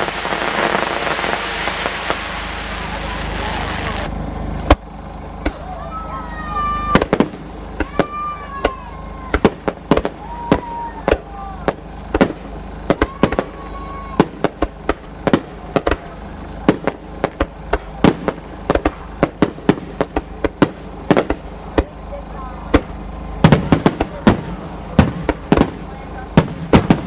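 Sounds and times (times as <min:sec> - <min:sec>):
fireworks bangs and pops: 0:00.0 - 0:05.7, 0:06.9 - 0:27.0
high held tones: 0:00.0 - 0:26.5.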